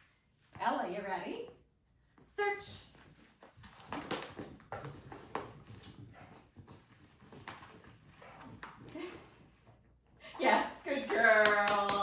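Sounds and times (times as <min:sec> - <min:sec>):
dog nosing and knocking cones: 0:03.4 - 0:09.4.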